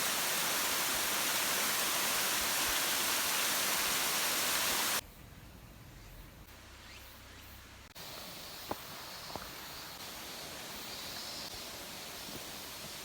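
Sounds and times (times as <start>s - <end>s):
waterfall rushing: 0.0s - 5.0s
faint hiss: 0.0s - 13.0s.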